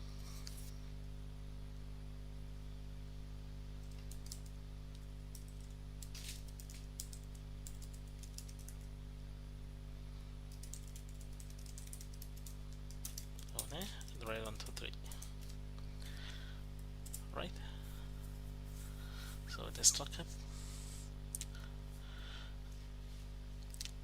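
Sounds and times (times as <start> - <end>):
low electrical hum: 0.0 - 24.0
computer keyboard typing: 3.8 - 4.5, 5.3 - 8.9, 10.5 - 15.6, 17.0 - 17.3.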